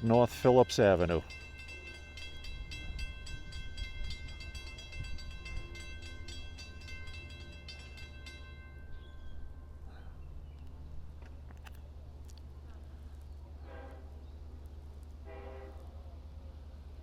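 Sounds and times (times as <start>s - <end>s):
railroad crossing bell ringing: 0.0s - 10.2s.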